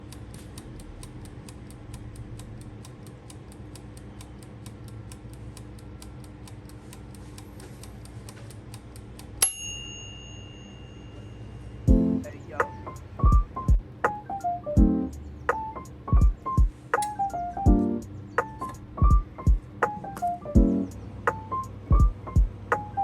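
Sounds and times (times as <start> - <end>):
mechanical timer ticking: 0.0 - 10.8
timer bell ringing: 9.4 - 12.0.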